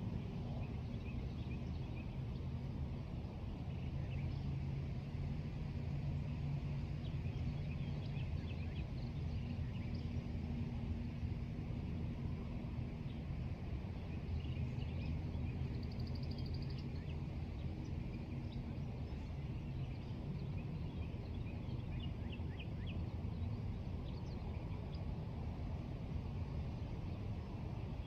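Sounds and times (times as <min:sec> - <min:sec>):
songbirds chirping: 0:06.3 - 0:11.2, 0:12.4 - 0:28.0.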